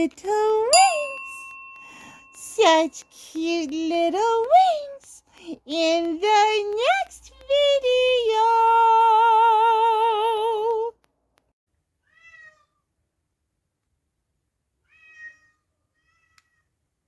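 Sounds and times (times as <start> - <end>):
person singing with vibrato: 0.0 - 10.9
cat meowing: 12.1 - 12.8, 14.9 - 16.6.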